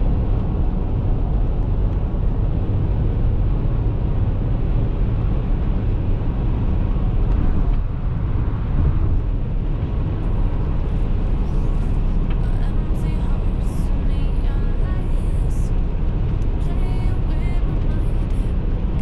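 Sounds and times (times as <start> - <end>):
vehicle driving on highway: 0.0 - 19.0.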